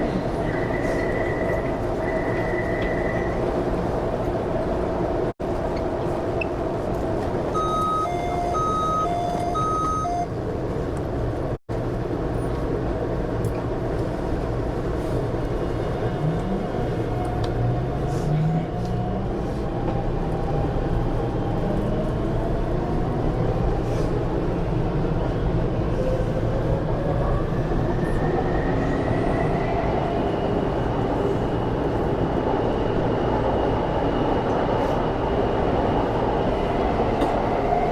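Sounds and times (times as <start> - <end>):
short electronic beeps: 7.6 - 10.3.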